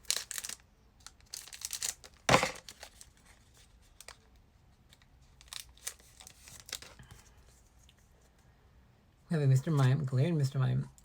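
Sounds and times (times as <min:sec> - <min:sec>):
foil pack tearing and crinkling: 0:00.0 - 0:03.2, 0:05.4 - 0:07.0.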